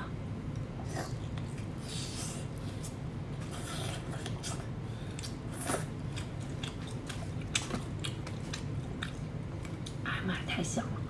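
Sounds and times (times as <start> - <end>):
low steady hum: 0.0 - 11.0
person chewing wet clicks: 3.9 - 10.0.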